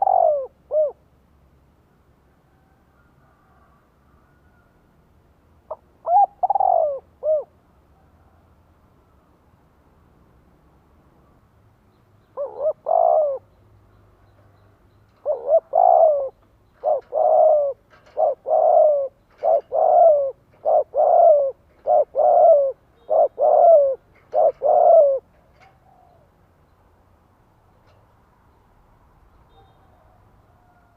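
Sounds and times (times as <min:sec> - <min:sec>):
dove cooing: 0:00.0 - 0:01.0, 0:05.7 - 0:07.6, 0:12.4 - 0:13.5, 0:15.2 - 0:26.3.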